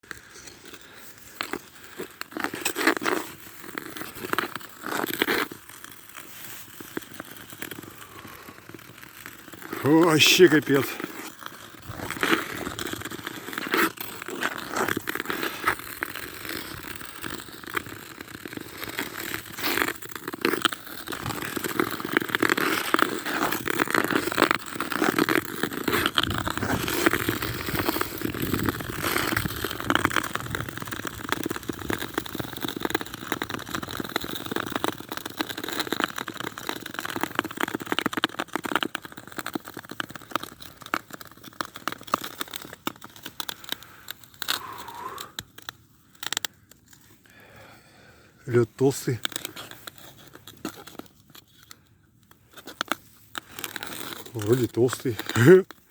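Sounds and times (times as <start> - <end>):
footsteps crunching in snow: 0.4 - 16.8.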